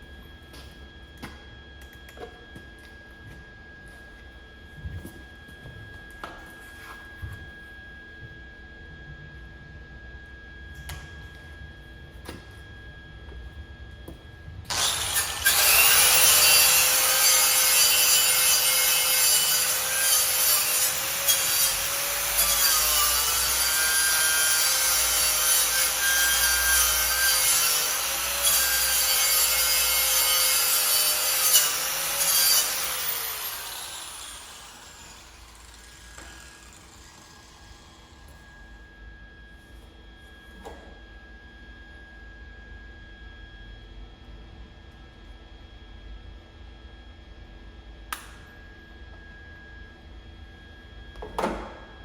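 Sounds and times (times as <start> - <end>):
angle grinder on metal: 14.7 - 38.4.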